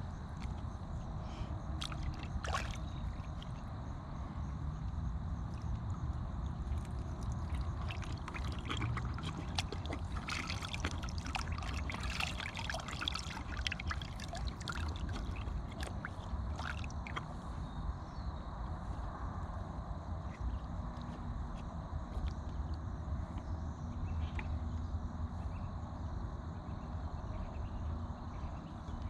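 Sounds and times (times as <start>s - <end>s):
steady low rumble: 0.0s - 29.0s
water splashing and sloshing: 0.3s - 4.2s, 5.3s - 17.8s
horse lapping water: 1.8s - 3.7s, 5.5s - 17.7s.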